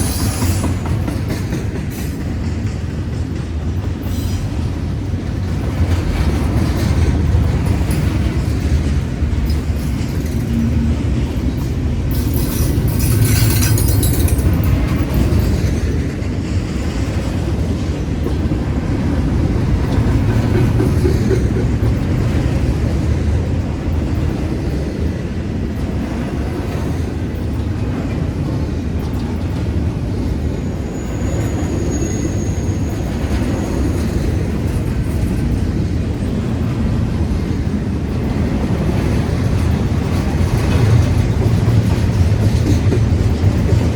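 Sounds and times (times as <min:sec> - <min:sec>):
train wheels rumbling on rails: 0:00.0 - 0:43.9
high-pitched wheel squeal: 0:30.9 - 0:33.9.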